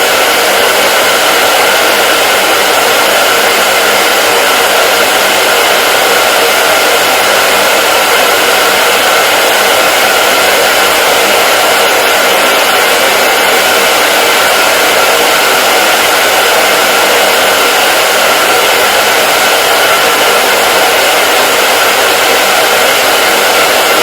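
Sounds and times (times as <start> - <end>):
hair dryer running: 0.0 - 24.0.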